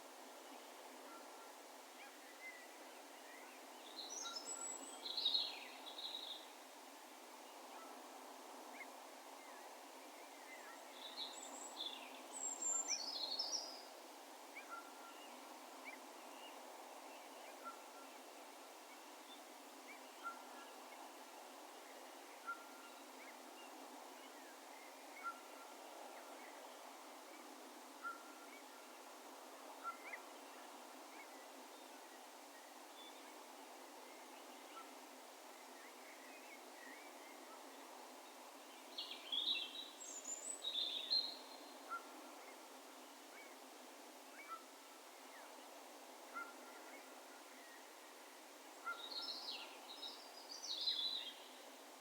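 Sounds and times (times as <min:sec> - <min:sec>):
faint steady background noise: 0:00.0 - 0:52.0.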